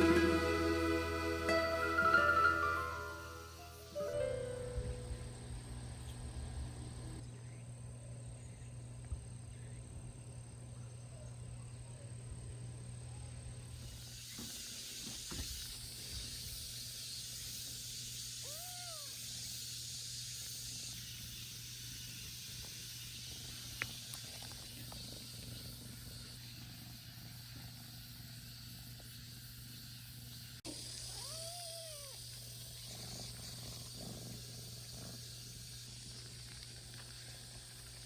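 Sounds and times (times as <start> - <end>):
steady high hiss: 0.0 - 7.2, 13.7 - 38.0
cat meowing: 18.4 - 19.2, 31.0 - 32.2.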